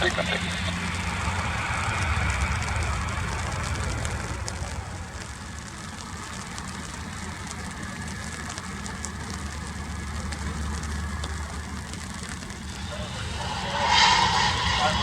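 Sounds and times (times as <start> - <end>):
low rumble: 0.0 - 6.7, 11.8 - 15.0
raindrops ticking: 0.0 - 12.8.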